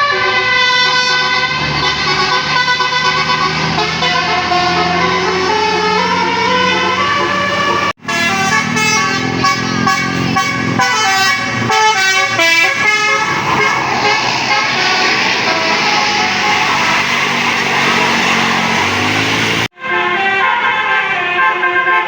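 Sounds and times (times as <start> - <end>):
rushing vehicle noise: 0.0 - 21.9
bus horn playing a melody: 0.0 - 22.0.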